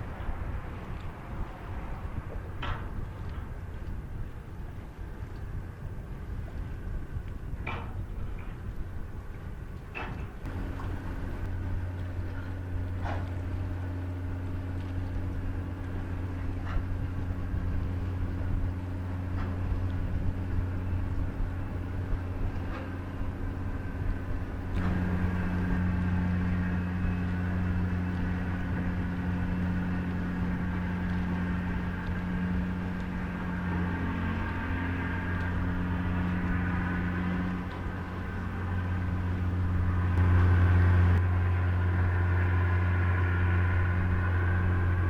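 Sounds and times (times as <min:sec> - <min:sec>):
diesel engines humming: 0:10.4 - 0:45.0
higher engine tone: 0:10.4 - 0:45.0.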